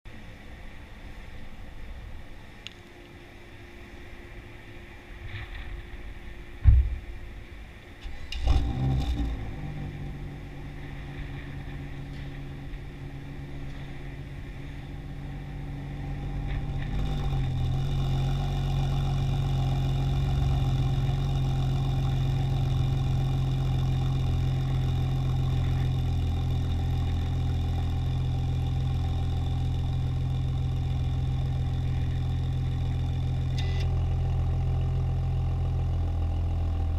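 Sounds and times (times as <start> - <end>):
car engine starting and idling: 0.1 - 36.9
sharp thump: 6.6 - 7.0.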